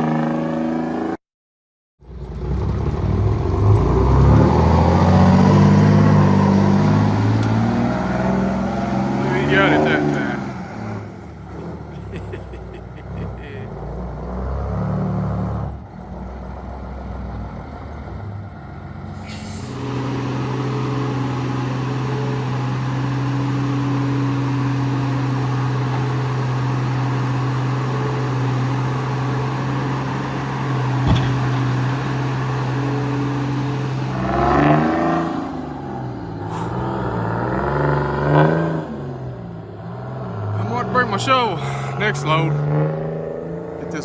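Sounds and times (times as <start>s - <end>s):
diesel engine humming: 2.0s - 44.0s
sharp knock: 31.0s - 31.5s.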